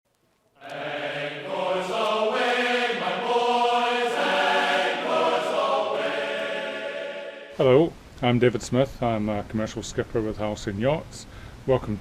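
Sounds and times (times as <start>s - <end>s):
choir singing held chords: 0.6s - 7.6s.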